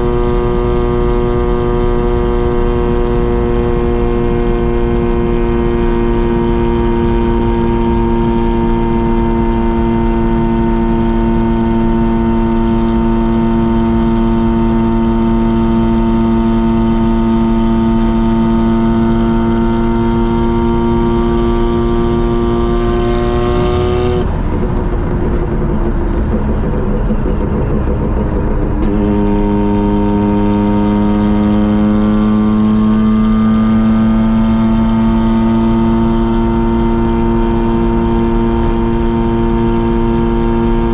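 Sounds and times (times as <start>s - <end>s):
engine and exhaust droning: 0.0s - 40.9s.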